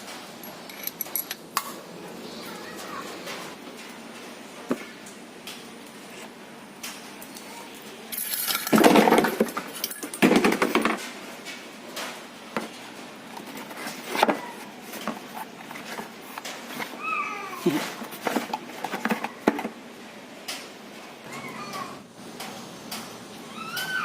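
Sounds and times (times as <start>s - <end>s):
metal tools clattering on workbench: 0.4s - 1.4s, 8.1s - 11.1s.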